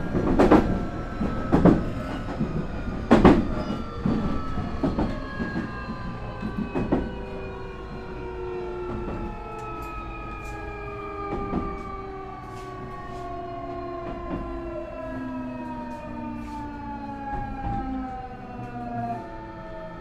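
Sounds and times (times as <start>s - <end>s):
wheels knocking on track: 0.0s - 5.7s.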